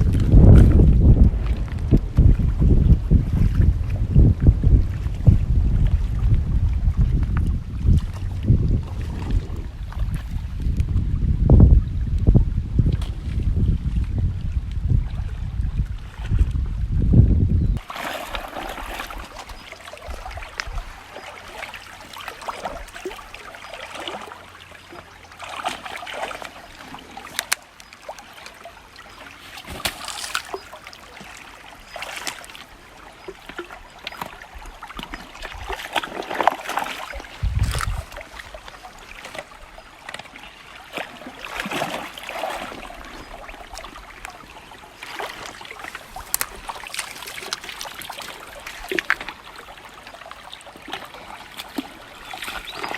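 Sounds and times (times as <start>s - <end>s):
water splashing and sloshing: 0.0s - 17.2s, 17.8s - 52.9s
river water trickling: 17.8s - 52.9s.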